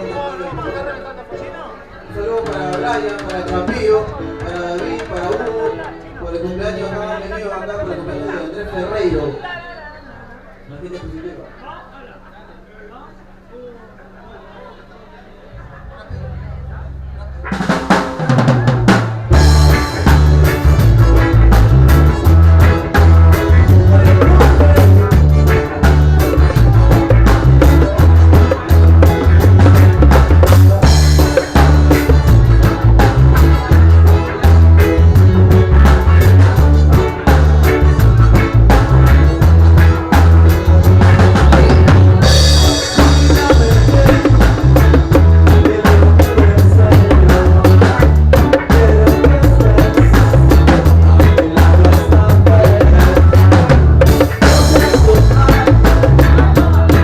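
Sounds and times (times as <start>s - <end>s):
live band playing loud music: 0.0s - 11.8s, 15.4s - 57.0s
heavy bass line: 15.4s - 57.0s
drum kit beat: 17.4s - 57.0s.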